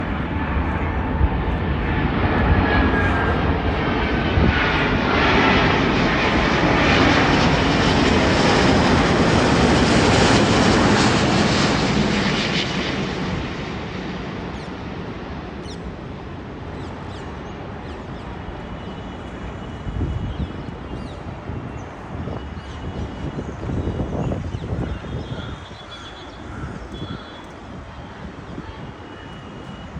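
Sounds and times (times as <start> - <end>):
jet airliner roar: 0.0 - 29.9.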